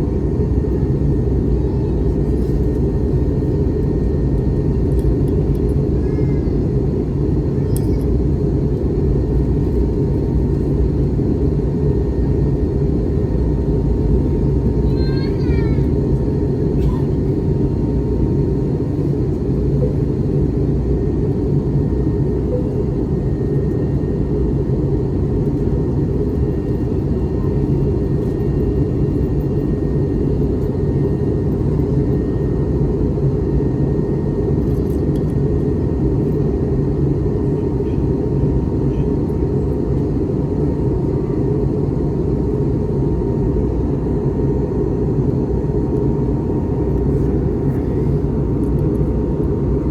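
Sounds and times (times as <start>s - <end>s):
aircraft engines and airflow rumble: 0.0s - 49.9s.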